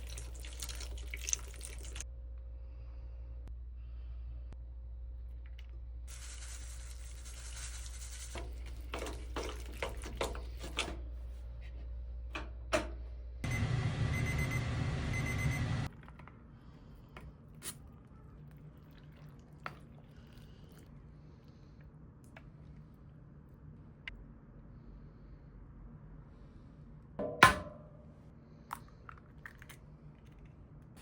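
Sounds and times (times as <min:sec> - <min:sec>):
running water: 0:00.0 - 0:02.0
low background hum: 0:00.0 - 0:31.0.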